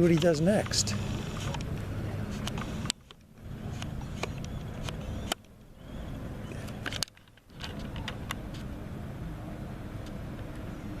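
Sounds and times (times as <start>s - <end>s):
sharp clicks and ticks: 0.0s - 1.8s.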